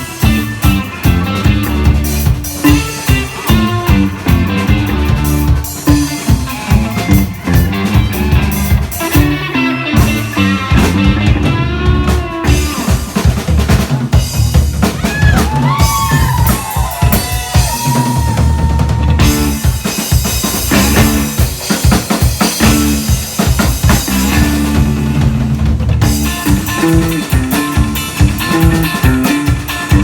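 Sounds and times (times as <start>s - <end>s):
lead guitar bending notes: 0.0s - 13.0s, 20.6s - 21.5s, 22.6s - 30.0s
bass guitar: 0.0s - 30.0s
drum kit with rimshots: 0.0s - 30.0s
electric guitar: 0.0s - 30.0s.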